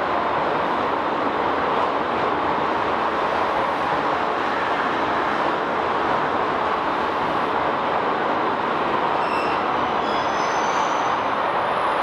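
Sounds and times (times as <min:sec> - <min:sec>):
high-pitched wheel squeals: 0:09.2 - 0:11.1.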